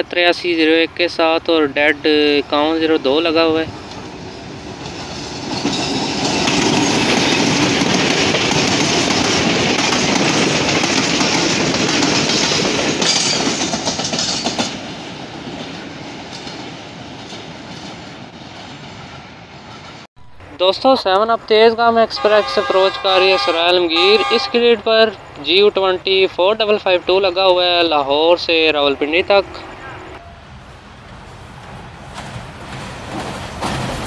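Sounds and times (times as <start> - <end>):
train passing: 0.0 - 34.0
wheels clattering over rails: 3.9 - 19.0, 31.6 - 34.0.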